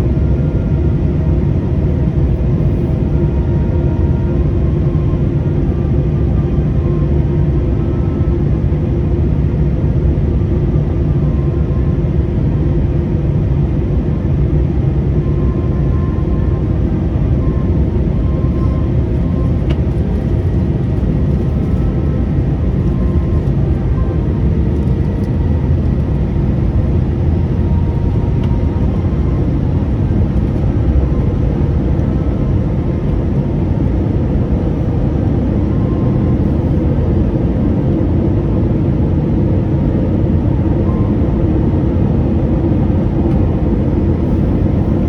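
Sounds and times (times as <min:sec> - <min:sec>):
engine and airflow rumble: 0:00.0 - 0:45.0
faint steady tones: 0:14.5 - 0:39.5.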